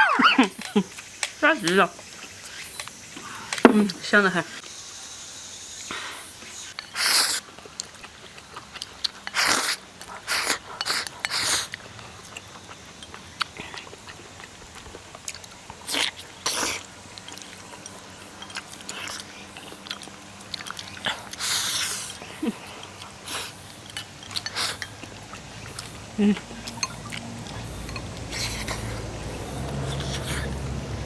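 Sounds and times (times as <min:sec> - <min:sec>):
person chewing wet mouth sounds: 0:06.9 - 0:30.9.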